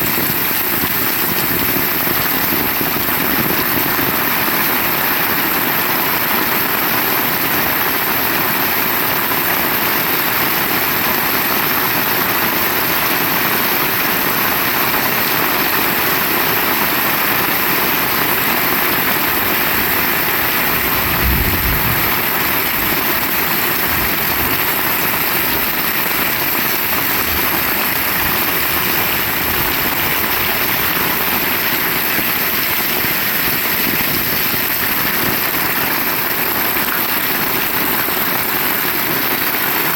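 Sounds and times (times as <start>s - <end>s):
heavy rain falling: 0.0s - 39.9s
low thump: 21.0s - 22.3s.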